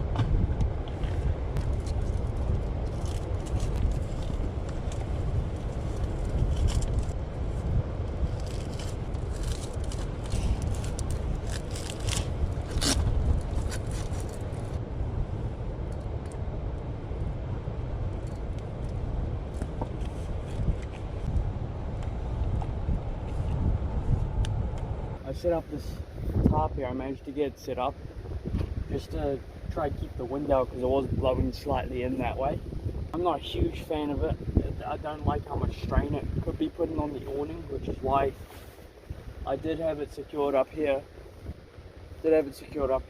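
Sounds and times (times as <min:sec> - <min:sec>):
wind buffeting microphone: 0:00.0 - 0:43.0
scrapes and crackles: 0:00.9 - 0:07.2, 0:08.3 - 0:14.8.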